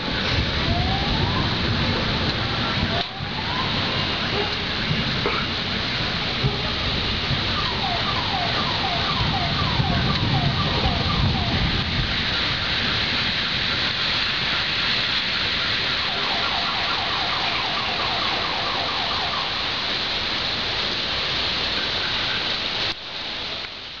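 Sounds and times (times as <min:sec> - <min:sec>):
steady rain: 0:00.0 - 0:24.0
faint siren warbling: 0:00.6 - 0:04.9, 0:06.4 - 0:13.0, 0:15.8 - 0:19.8.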